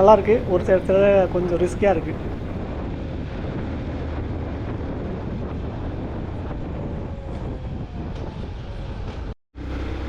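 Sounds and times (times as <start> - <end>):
motorcycle engine cruising: 0.0 - 2.6, 4.7 - 10.0
wind noise on microphone: 0.0 - 10.0.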